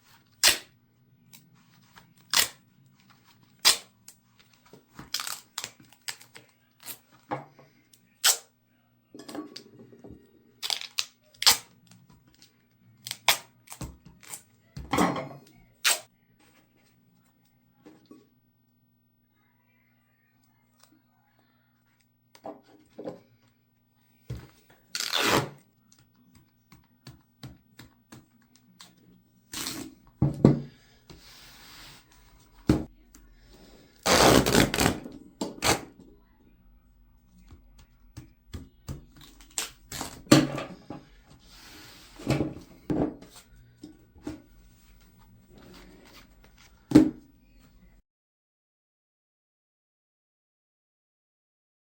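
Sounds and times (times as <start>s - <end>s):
duct tape tearing: 0.4s - 0.7s, 2.2s - 2.6s, 3.6s - 3.9s, 5.0s - 7.0s, 8.2s - 8.5s, 10.6s - 11.7s, 13.0s - 14.4s, 15.8s - 16.0s, 24.9s - 25.6s, 29.5s - 29.9s, 34.0s - 35.9s, 39.2s - 40.4s.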